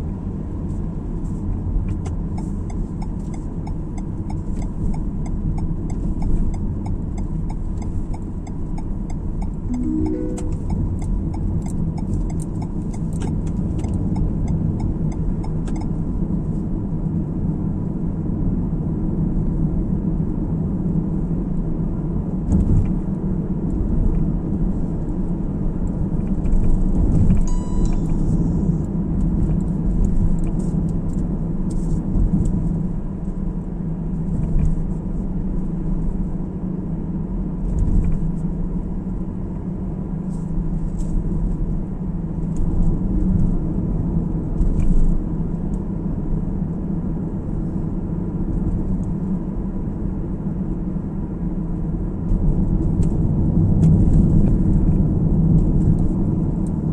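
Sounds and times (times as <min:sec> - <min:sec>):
short electronic beep: 0:09.7 - 0:11.2, 0:27.5 - 0:28.6
car driving rumble: 0:10.5 - 0:56.9.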